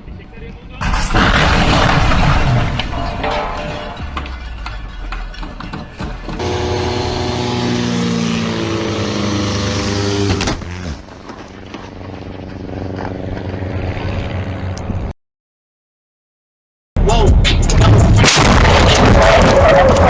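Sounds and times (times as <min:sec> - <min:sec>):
road noise: 0:00.0 - 0:15.1
car engine running loud: 0:02.7 - 0:15.1.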